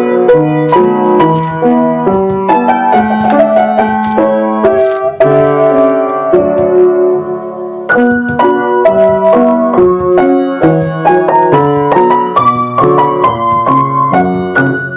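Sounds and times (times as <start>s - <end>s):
piano melody over chords: 0.0s - 14.9s.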